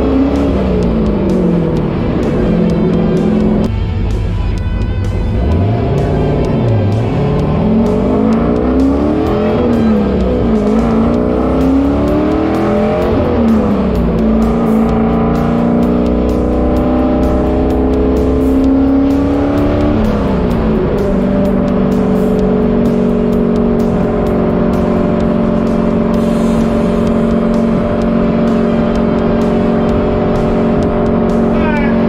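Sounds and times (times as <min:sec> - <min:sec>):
car engine accelerating through gears: 0:00.0 - 0:32.0.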